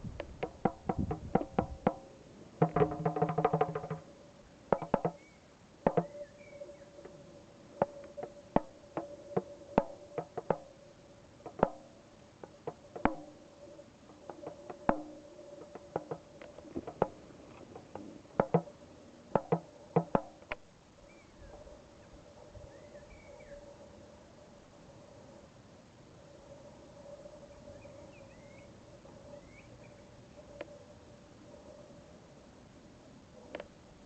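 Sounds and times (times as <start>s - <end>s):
hand drum taps: 0.2s - 2.0s, 2.6s - 4.0s, 4.7s - 5.2s, 5.9s - 6.1s, 7.8s - 10.6s, 11.4s - 11.8s, 12.4s - 13.3s, 14.3s - 17.2s, 17.8s - 18.7s, 19.4s - 20.6s
faint high chirps: 5.1s - 11.0s.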